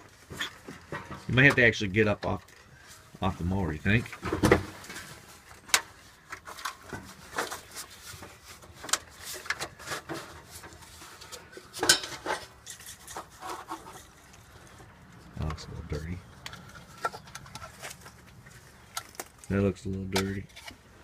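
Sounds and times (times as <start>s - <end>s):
engine parts clicking and rattling: 3.9s - 21.0s.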